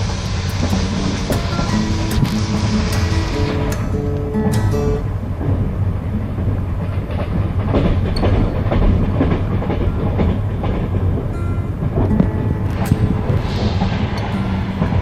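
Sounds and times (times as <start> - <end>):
held tones: 0.0 - 5.2
train carriage rumbling on rails: 0.0 - 15.0
wheels clattering over rail joints: 0.0 - 15.0.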